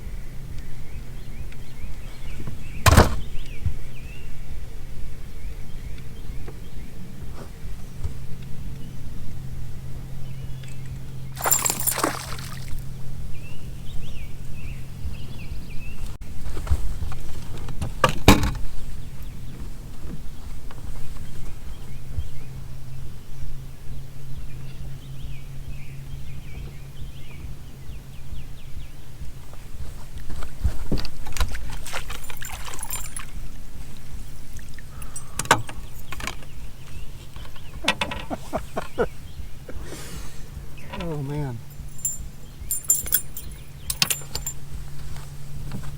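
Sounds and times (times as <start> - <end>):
knocks against a boat: 2.8 - 3.4, 17.7 - 18.7
water splash: 11.4 - 12.8
low steady rumble: 21.2 - 45.9.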